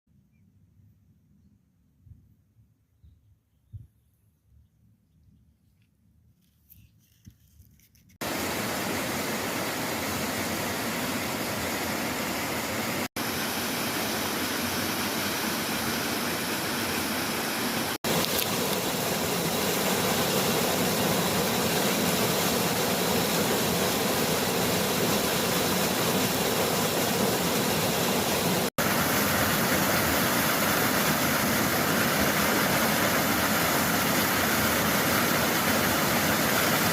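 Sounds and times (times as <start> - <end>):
waterfall roaring: 8.2 - 36.9.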